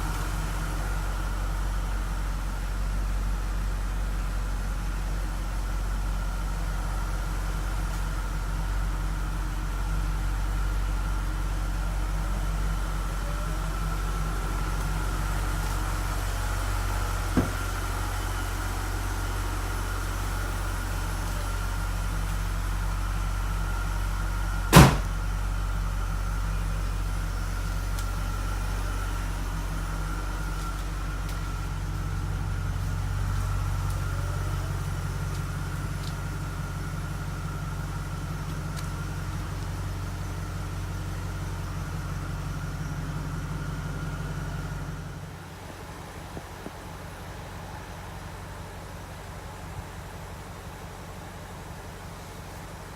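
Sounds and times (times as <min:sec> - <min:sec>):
car engine idling with whine: 0:00.0 - 0:52.9
sharp knock: 0:24.7 - 0:25.1.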